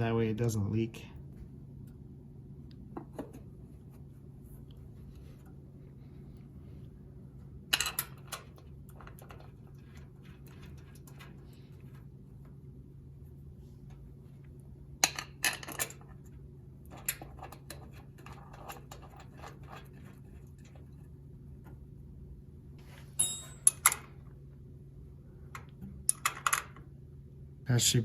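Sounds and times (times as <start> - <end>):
metal bolts clicking and clinking: 23.2 - 24.1.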